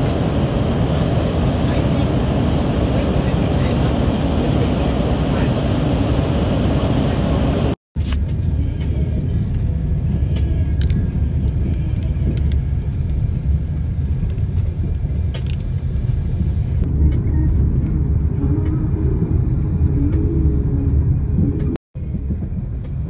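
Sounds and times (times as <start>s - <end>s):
vehicle rumble from inside cabin: 0.0s - 23.0s.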